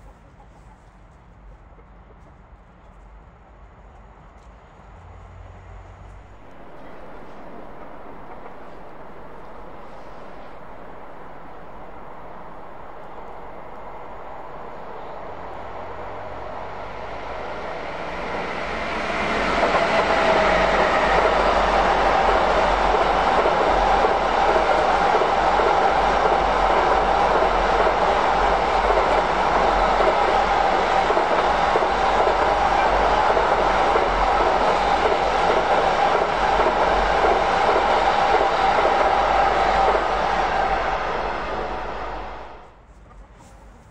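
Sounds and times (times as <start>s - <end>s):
wheel and rail noise: 0.0s - 43.9s
electric train passing: 4.7s - 42.8s.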